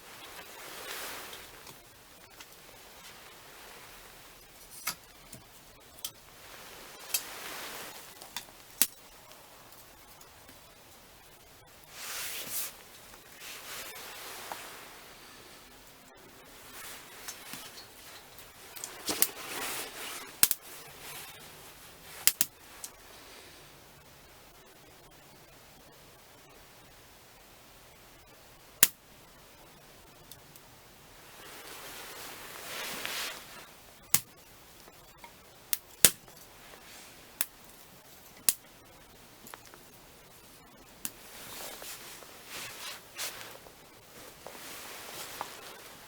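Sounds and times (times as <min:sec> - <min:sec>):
firewood crackling and popping: 0:00.0 - 0:14.8, 0:16.2 - 0:23.4, 0:28.2 - 0:46.0
soft hiss: 0:00.0 - 0:46.0.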